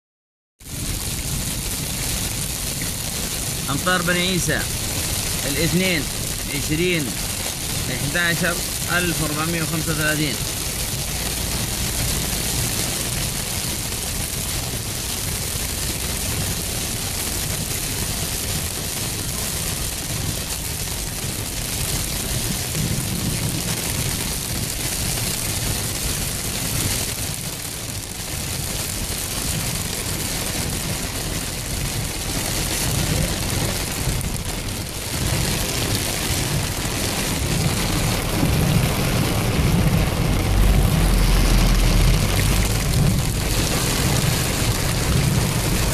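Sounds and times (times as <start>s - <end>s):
heavy rain: 0.6s - 45.9s
low rumble: 30.9s - 45.9s.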